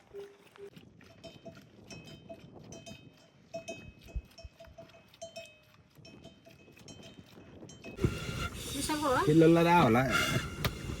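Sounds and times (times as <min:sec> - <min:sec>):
livestock bells clinking: 0:00.0 - 0:08.0.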